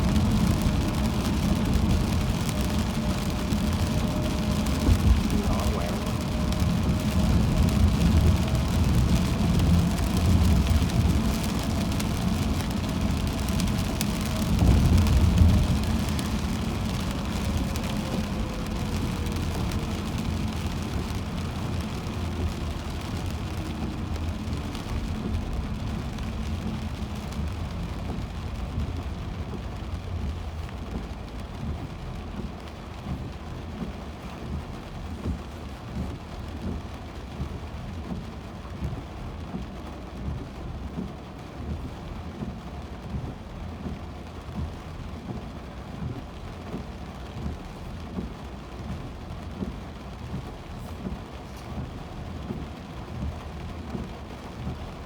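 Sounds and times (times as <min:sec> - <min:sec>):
soft regular thumps: 0:00.0 - 0:23.1
heavy rain on a car: 0:00.0 - 0:55.0
tyre noise on wet road: 0:00.0 - 0:55.0.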